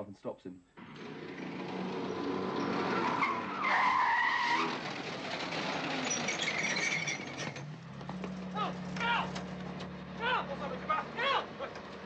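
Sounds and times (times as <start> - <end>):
tyres squealing: 2.6 - 4.9, 5.8 - 7.7.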